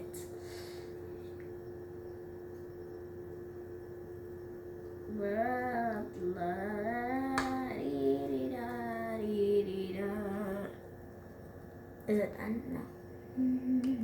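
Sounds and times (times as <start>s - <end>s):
girl humming a tune: 13.4s - 14.0s.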